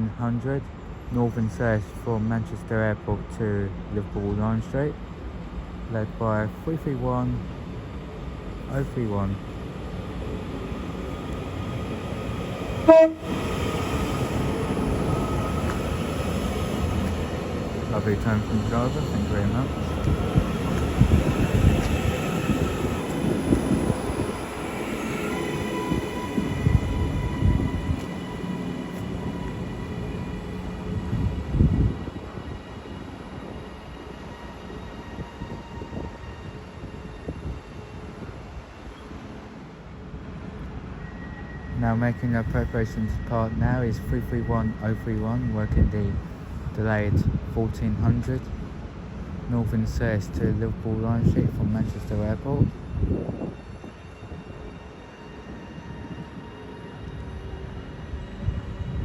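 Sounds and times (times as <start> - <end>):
train low rumble: 0.0 - 59.0
short two-note train horn: 12.8 - 13.4.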